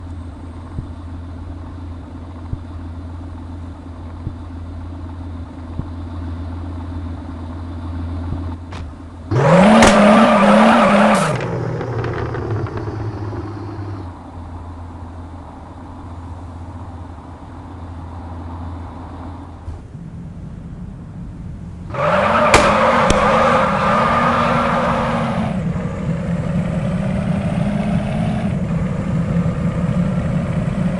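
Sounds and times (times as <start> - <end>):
car engine idling and revving: 0.0 - 30.9.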